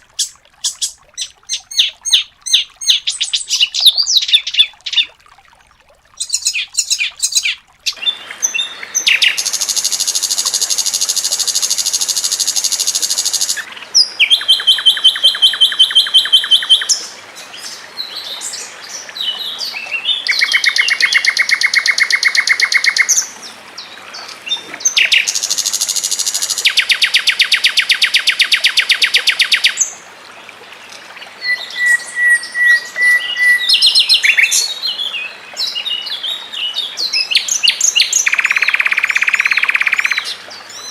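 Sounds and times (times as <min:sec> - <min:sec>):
songbird trilling: 0:00.2 - 0:05.1, 0:06.2 - 0:17.0, 0:37.2 - 0:40.3.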